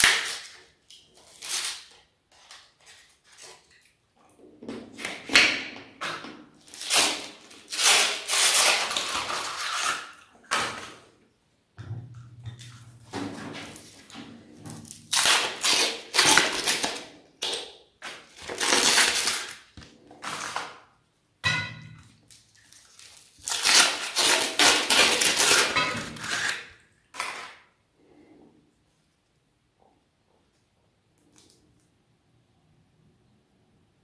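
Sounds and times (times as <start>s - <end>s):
meat grinder crunching cone: 23.4s - 26.7s.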